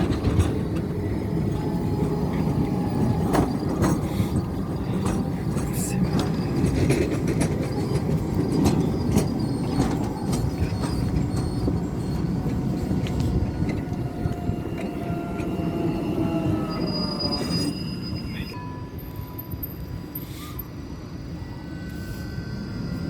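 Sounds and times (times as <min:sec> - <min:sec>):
wheels clicking on track: 0:00.0 - 0:17.7
tram rumbling on rails: 0:00.0 - 0:23.0.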